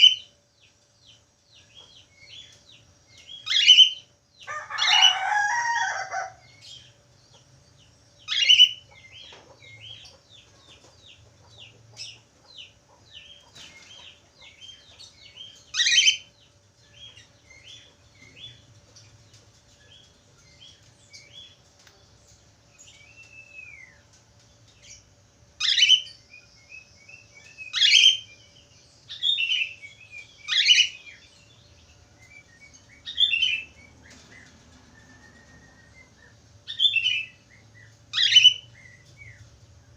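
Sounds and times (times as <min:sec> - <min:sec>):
loud sharp bird calls: 0:03.3 - 0:06.9, 0:32.5 - 0:39.5.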